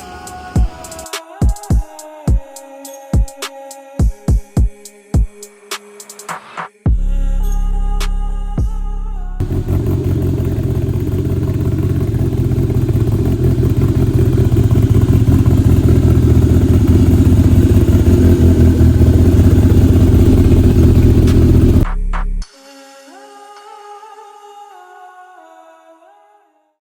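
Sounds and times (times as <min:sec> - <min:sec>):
engine deep rumble: 0:07.0 - 0:22.4.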